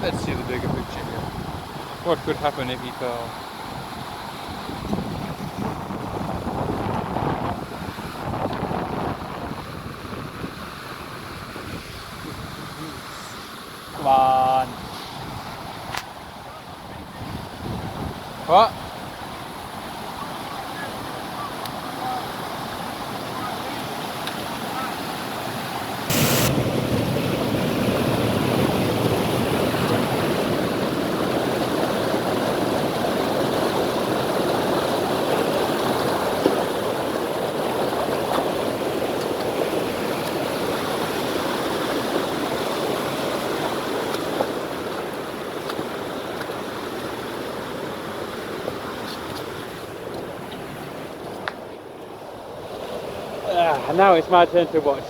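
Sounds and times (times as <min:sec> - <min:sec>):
stream rushing over rocks: 0:18.5 - 0:51.2.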